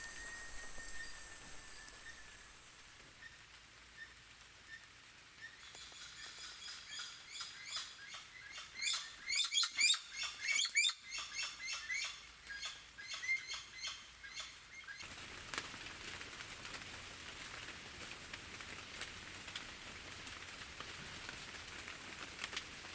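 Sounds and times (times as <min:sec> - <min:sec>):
rapid high chirping calls: 0:00.0 - 0:02.9
rain falling: 0:00.0 - 0:03.2, 0:15.0 - 0:22.9.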